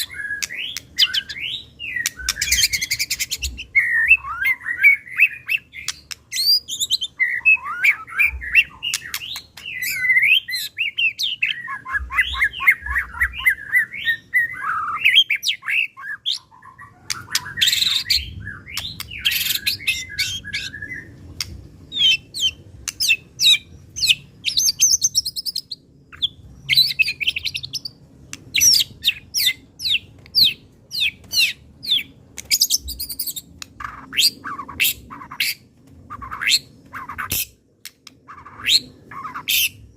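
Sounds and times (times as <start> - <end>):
songbird singing varied song: 0.0 - 39.9.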